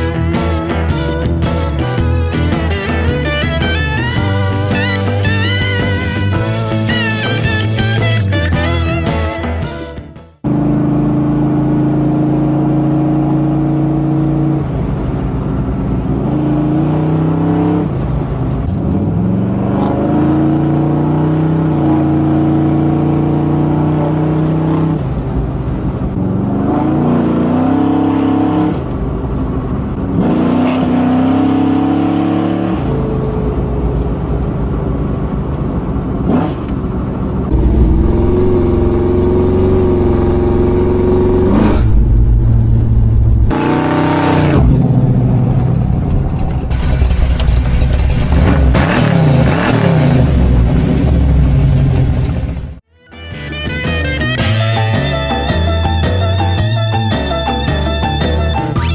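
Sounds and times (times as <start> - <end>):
car engine revving: 10.4 - 52.8.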